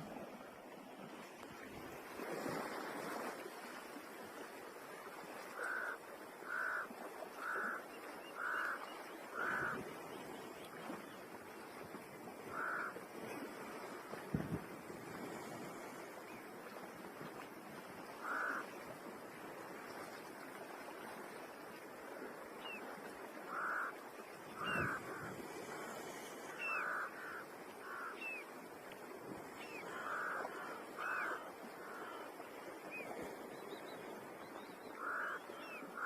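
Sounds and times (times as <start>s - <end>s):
crow-like bird caws: 5.6s - 7.8s, 8.4s - 9.8s, 12.5s - 13.0s, 18.2s - 18.7s, 23.5s - 24.0s, 26.6s - 28.2s, 29.8s - 32.3s, 35.0s - 35.4s.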